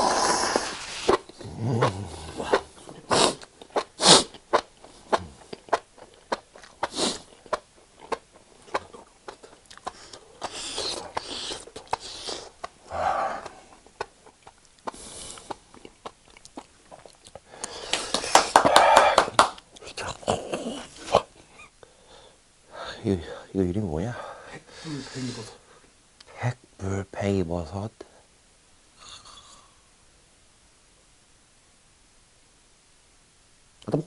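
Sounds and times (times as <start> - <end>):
sharp breaths and sniffs: 9.8 - 13.6
wet mouth clicks chewing: 13.4 - 17.8.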